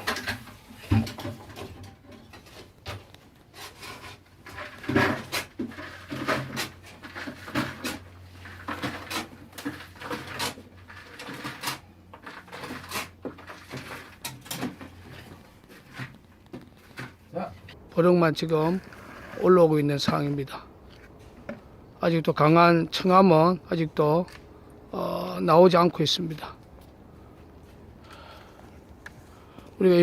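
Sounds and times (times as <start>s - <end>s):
bucket knocking and clanking: 0.0s - 3.1s, 4.4s - 17.2s.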